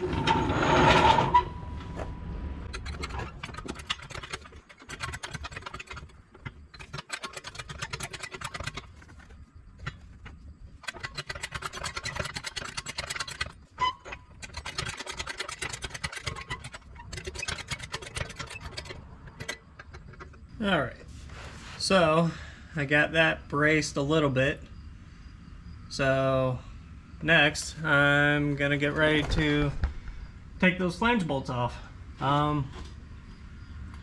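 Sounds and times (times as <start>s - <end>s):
car jack clicking and rattling: 2.6s - 20.5s.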